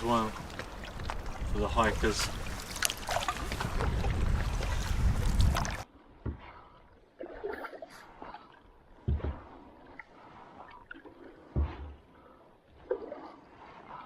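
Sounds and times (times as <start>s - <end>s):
paddle splashing water: 0.0s - 14.0s
wind on microphone: 0.8s - 5.8s.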